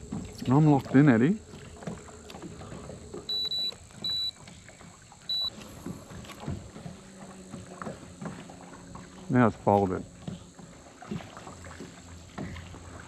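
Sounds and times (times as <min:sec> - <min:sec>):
water and boat noise: 0:00.0 - 0:13.0
short high electronic beeps: 0:03.3 - 0:04.4, 0:05.3 - 0:05.5.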